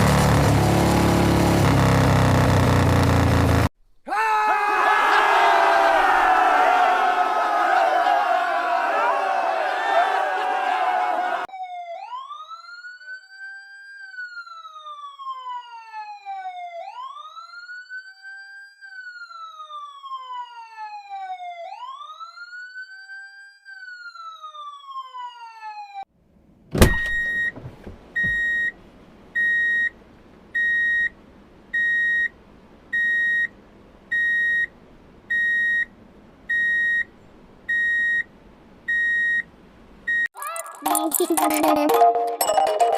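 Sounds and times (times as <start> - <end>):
wailing siren: 4.7 - 26.1
high electronic beep: 40.1 - 42.9.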